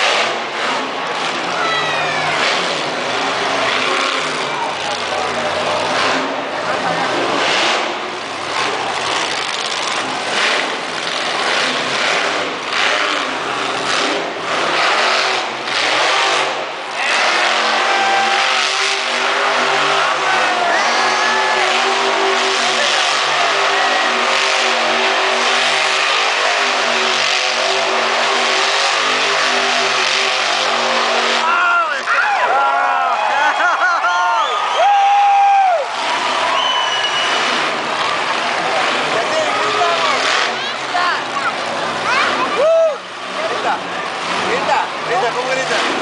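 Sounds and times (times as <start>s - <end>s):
monster truck engine revving: 0.0s - 46.0s.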